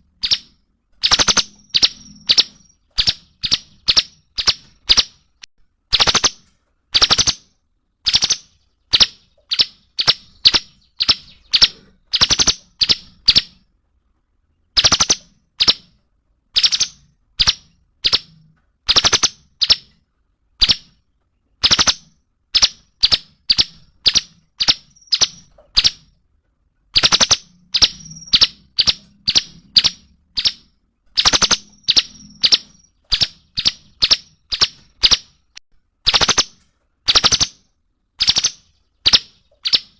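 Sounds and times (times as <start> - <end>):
songbird singing sharp notes: 0.0 - 6.4, 7.0 - 13.7, 16.6 - 20.0, 27.0 - 36.5.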